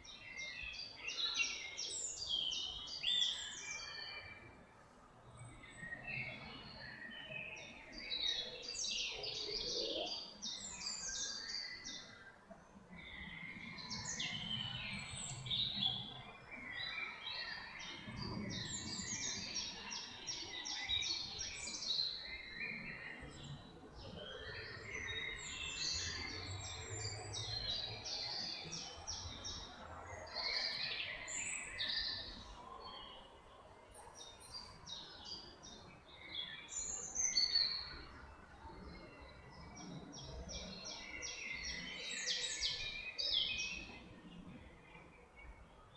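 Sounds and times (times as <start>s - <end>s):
songbirds chirping and trilling: 0.0s - 45.9s.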